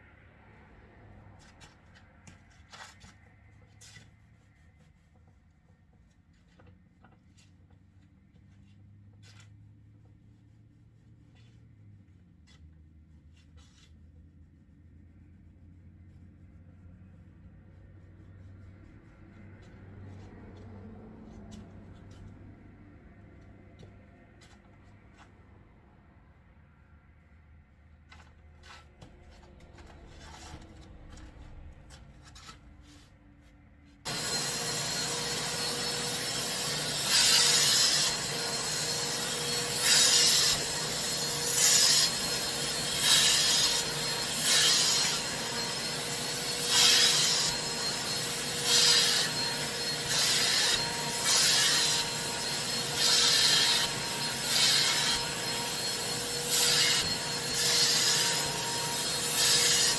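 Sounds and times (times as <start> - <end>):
carpet cleaning machine humming: 34.1 - 59.7.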